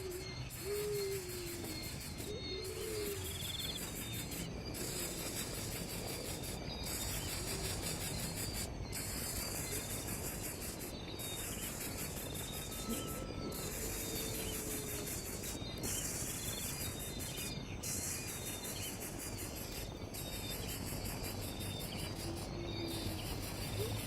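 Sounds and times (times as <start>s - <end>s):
faint bird trills: 0.0s - 24.0s
high-pitched insect chorus: 0.0s - 24.0s.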